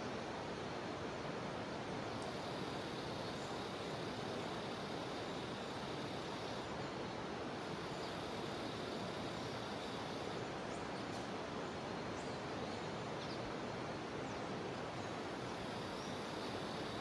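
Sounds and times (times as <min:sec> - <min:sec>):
cicadas droning: 0:01.8 - 0:10.7, 0:14.9 - 0:17.0.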